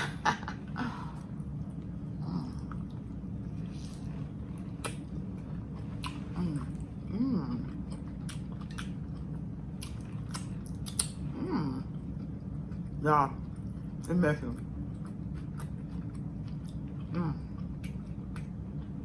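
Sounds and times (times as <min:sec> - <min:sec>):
woman chewing with wet smacks: 0:01.2 - 0:19.0
woman humming with enjoyment: 0:02.2 - 0:02.7, 0:06.4 - 0:07.7, 0:11.4 - 0:11.9.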